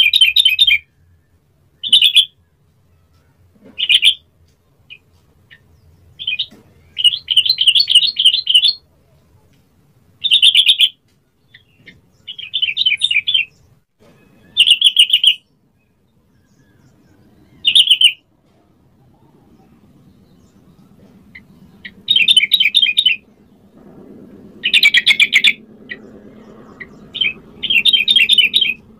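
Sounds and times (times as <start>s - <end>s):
bird singing bubbly warbles: 14.2s - 18.2s, 19.0s - 28.9s.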